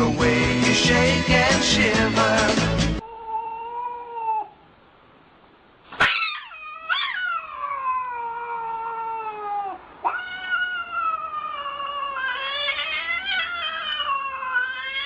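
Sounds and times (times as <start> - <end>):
cat yowling: 3.0 - 4.6, 6.0 - 15.0.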